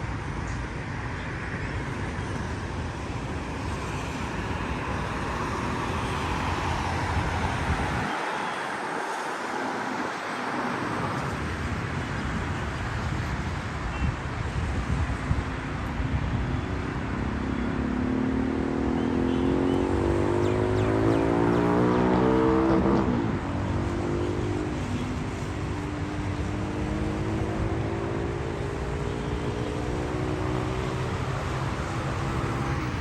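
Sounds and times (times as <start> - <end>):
low road rumble: 9.6 - 33.0
vehicle engine accelerating: 17.2 - 24.8, 26.1 - 33.0.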